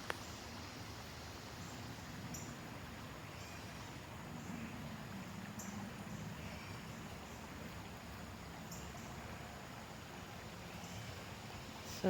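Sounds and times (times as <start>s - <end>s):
steady low hiss: 0.0s - 12.0s
small birds chirping: 3.2s - 9.5s.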